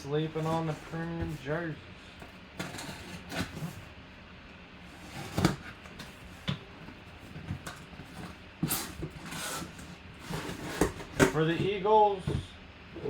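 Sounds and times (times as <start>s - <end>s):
box knocks and scrapes: 2.6s - 3.9s, 5.0s - 6.3s, 6.9s - 12.4s.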